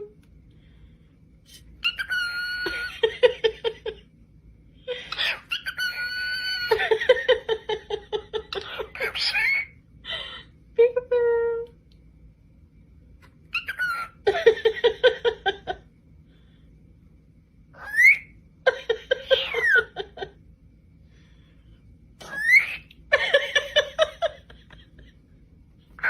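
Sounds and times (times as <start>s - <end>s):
parrot rising whistles: 1.8s - 2.9s, 17.8s - 18.4s, 22.2s - 22.9s
parrot pulsed chattering calls: 1.8s - 3.0s, 5.1s - 6.9s, 8.5s - 9.8s, 13.5s - 14.3s, 22.2s - 22.9s.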